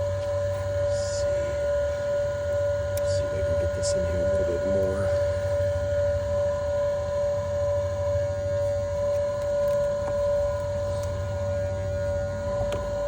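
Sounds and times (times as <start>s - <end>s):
constant high tone: 0.0s - 13.0s
smoke machine humming: 0.0s - 13.0s.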